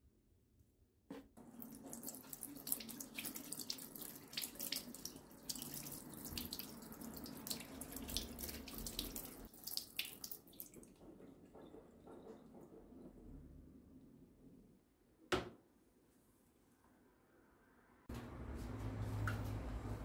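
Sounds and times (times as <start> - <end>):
tap water splashing into sink: 1.4 - 12.2.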